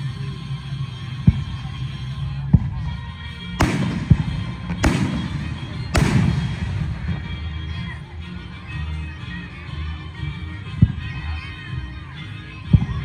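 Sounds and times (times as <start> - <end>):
music: 0.0 - 13.0
sharp fireworks thumps: 3.6 - 7.9
fireworks booming: 3.6 - 8.0.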